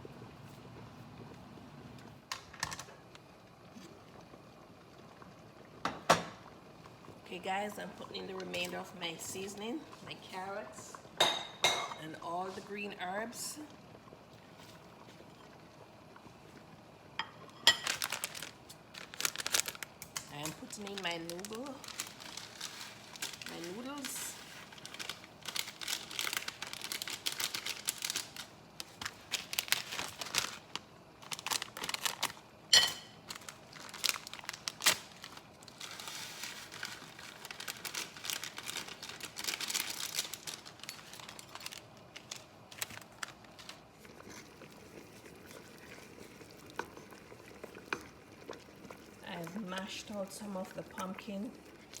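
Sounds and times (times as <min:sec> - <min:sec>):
packet crinkling and rustling: 0:17.7 - 0:32.6, 0:33.2 - 0:49.1.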